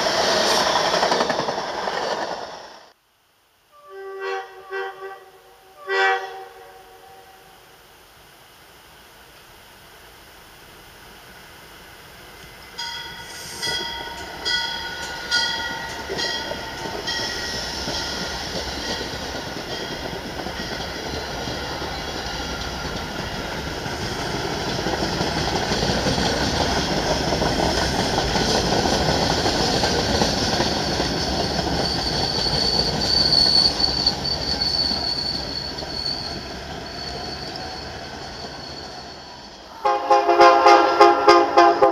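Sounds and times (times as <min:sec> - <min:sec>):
rumble of wheels on rail: 0:00.0 - 0:03.0, 0:06.2 - 0:41.9
high-pitched wheel squeal: 0:30.5 - 0:39.8.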